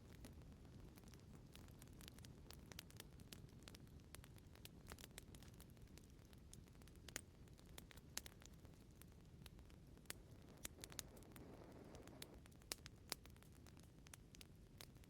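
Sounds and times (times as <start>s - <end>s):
wood fire crackling: 0.0s - 15.0s
rush of flame: 10.0s - 12.5s.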